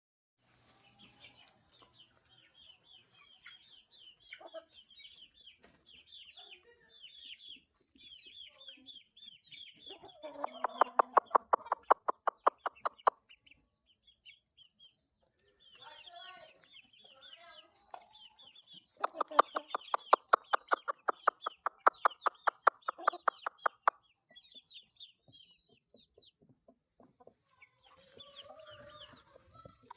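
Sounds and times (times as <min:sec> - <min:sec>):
chickens chirping: 0:00.5 - 0:29.9
sharp rapid clicks: 0:10.8 - 0:13.1, 0:19.0 - 0:23.9.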